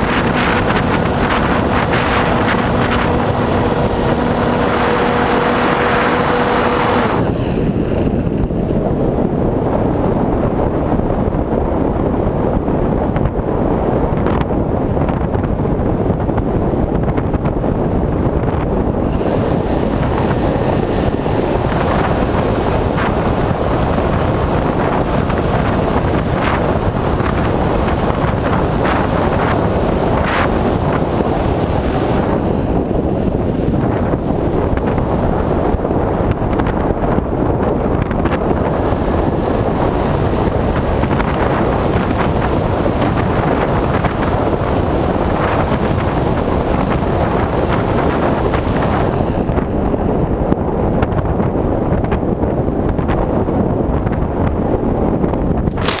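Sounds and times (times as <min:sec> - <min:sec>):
low hum: 0:00.0 - 0:11.2, 0:17.6 - 0:43.5
wind rushing over microphone: 0:00.0 - 0:56.0.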